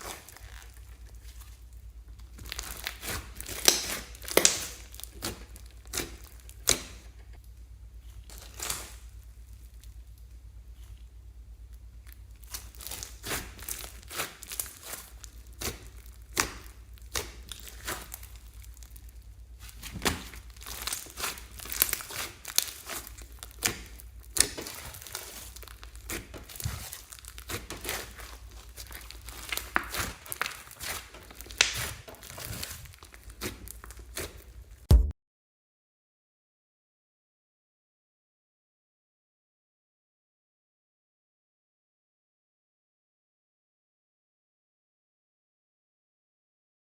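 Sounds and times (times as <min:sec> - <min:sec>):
slime squishing and crackling: 0:00.0 - 0:07.3, 0:08.1 - 0:11.1, 0:11.7 - 0:35.0
loud knock: 0:34.9 - 0:35.1.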